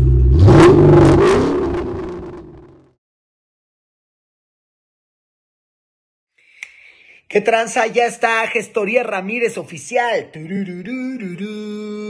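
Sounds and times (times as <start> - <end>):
car engine revving: 0.0 - 2.9.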